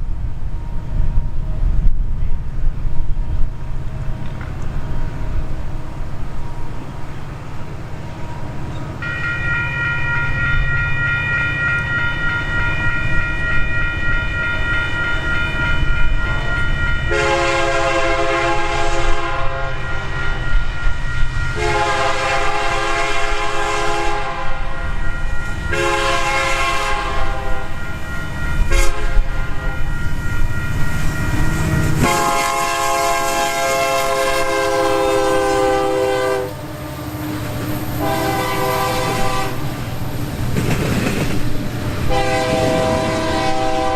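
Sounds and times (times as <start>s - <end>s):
passing train rumble: 0.0s - 43.9s
train air horn blasts: 9.0s - 40.0s, 42.0s - 43.9s.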